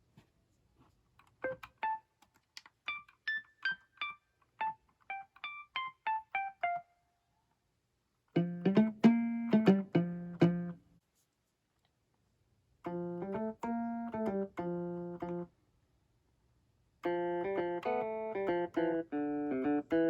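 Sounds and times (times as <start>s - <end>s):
keyboard playing piano notes: 1.4s - 2.0s, 2.9s - 6.9s, 12.9s - 15.5s, 17.0s - 20.0s
low full keyboard notes: 12.9s - 15.5s, 17.0s - 20.0s.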